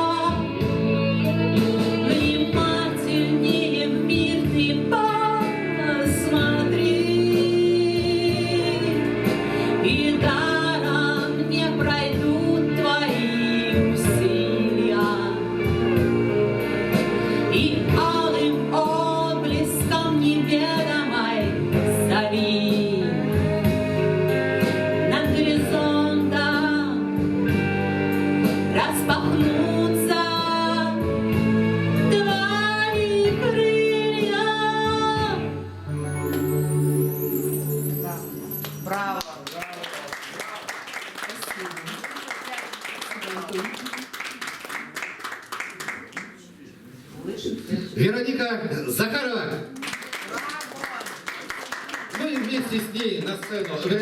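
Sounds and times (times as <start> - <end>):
instrumental accompaniment: 0.0 - 39.4.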